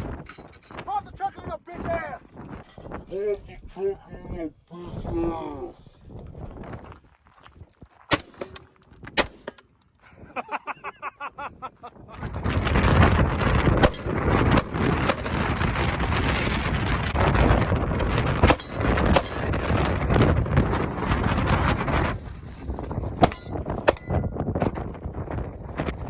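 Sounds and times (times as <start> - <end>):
wind buffeting microphone: 0.0 - 9.4, 11.4 - 26.0
sharp cracks: 8.1 - 9.8, 13.8 - 15.7, 18.4 - 21.5, 23.2 - 24.2.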